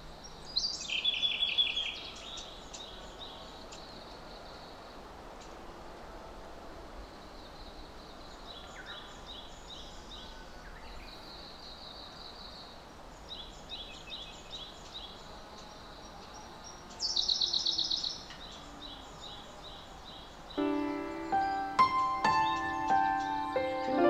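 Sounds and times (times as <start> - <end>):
steady background noise: 0.0 - 24.0
birds chirping: 8.1 - 24.0.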